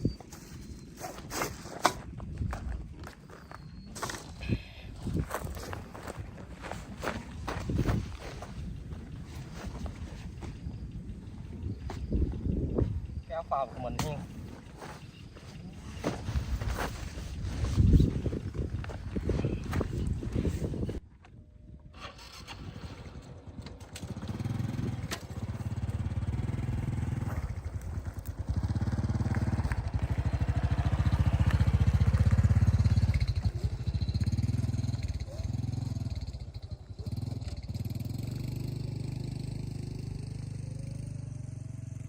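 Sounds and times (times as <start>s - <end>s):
small engine revving: 22.0s - 42.0s.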